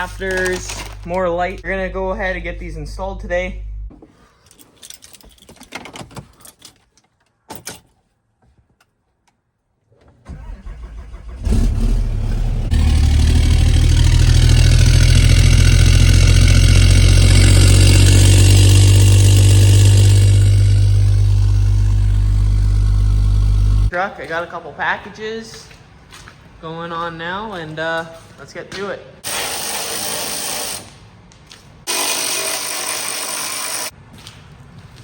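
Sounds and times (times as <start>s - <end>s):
diesel truck engine cranking and running: 10.2s - 23.9s.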